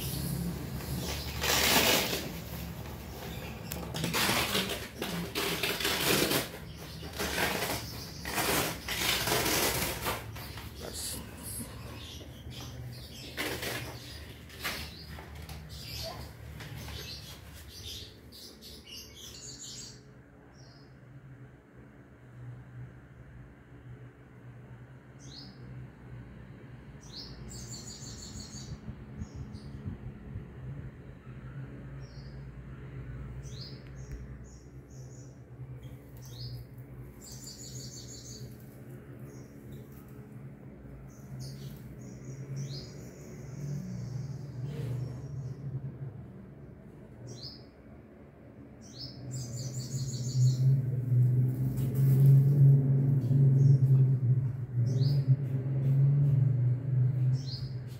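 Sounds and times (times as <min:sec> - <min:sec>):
birds chirping: 0:00.0 - 0:20.8, 0:33.4 - 0:40.4, 0:48.8 - 0:51.2.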